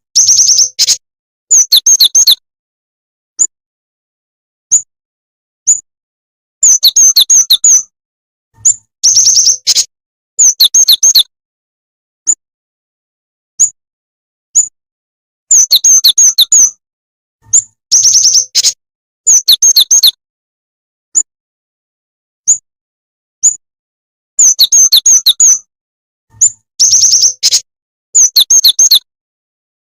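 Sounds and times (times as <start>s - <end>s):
bird lure call chirps: 0.2s - 2.4s, 6.6s - 7.9s, 8.6s - 11.3s, 15.5s - 16.8s, 17.5s - 20.2s, 24.4s - 25.7s, 26.4s - 27.6s, 28.2s - 29.1s.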